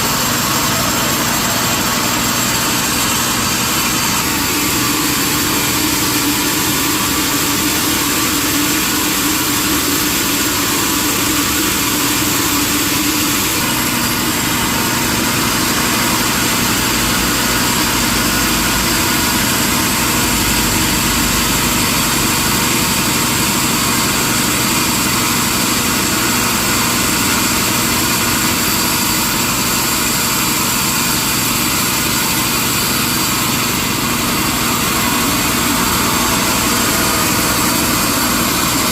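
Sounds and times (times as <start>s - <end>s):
sawmill machinery humming: 0.0s - 38.9s.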